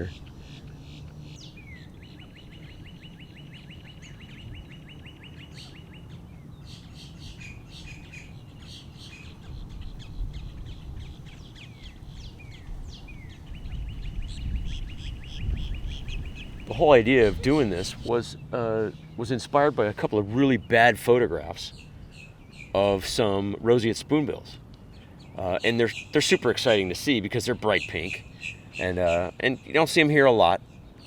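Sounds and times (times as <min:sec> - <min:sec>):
bird trilling: 0:07.1 - 0:18.1.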